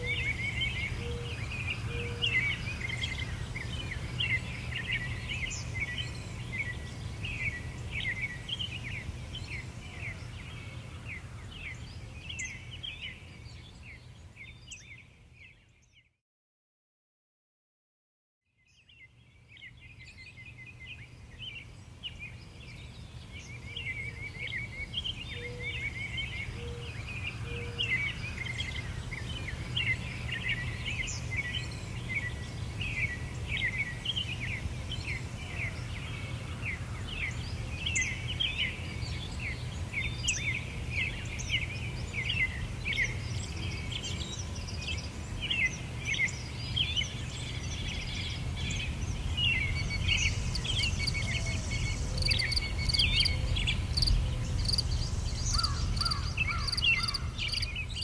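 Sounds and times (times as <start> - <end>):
small birds chirping: 18.9 - 58.0
steady low rumble: 48.9 - 58.0.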